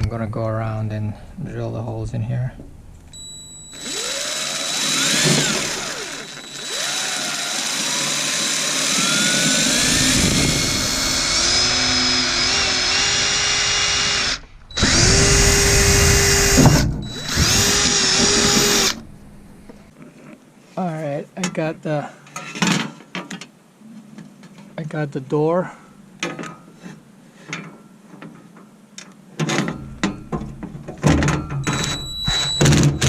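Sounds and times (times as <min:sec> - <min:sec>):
power drill whining: 0:03.2 - 0:19.1, 0:31.7 - 0:33.0.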